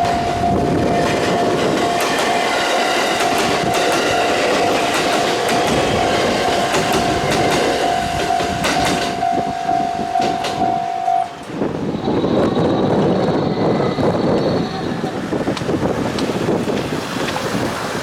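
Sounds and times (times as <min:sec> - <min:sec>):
steady high tone: 0:00.0 - 0:12.2
train wheels clattering over rails: 0:00.0 - 0:13.4, 0:14.0 - 0:18.0.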